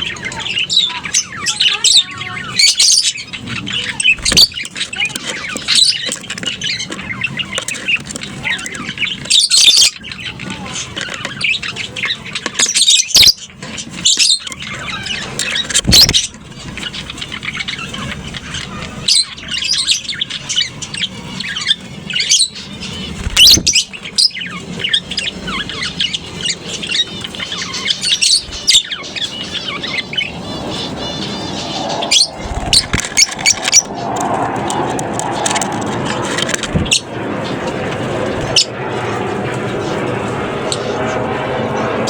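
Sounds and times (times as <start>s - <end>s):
lovebirds chirping and chattering: 0.0s - 42.0s
bird shrieks: 27.0s - 36.0s.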